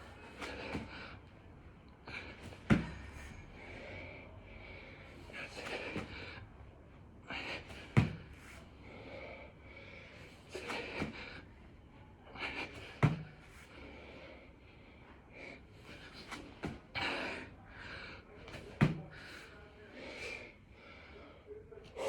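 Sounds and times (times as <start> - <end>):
man breathing hard: 0.0 - 1.3, 2.0 - 6.6, 7.2 - 11.6, 12.3 - 18.4
body thumping on floor: 2.5 - 3.1, 8.0 - 8.3, 13.0 - 13.4.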